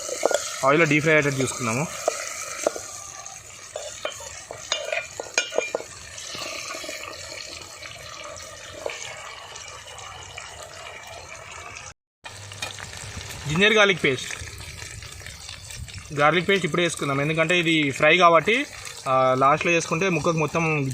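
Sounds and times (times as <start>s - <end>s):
spoon scraping a pan: 0.0s - 7.1s
food sizzling in a pan: 0.0s - 20.9s.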